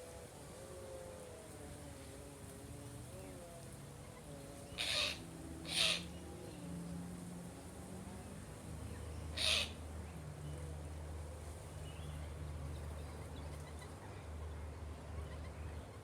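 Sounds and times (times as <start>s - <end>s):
bird squawk: 4.8s - 6.1s, 9.4s - 9.8s.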